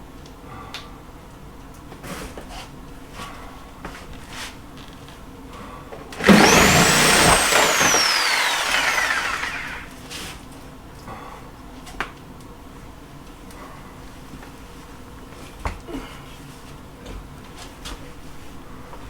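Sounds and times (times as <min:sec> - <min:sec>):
power tool motor whining: 0:06.2 - 0:09.9.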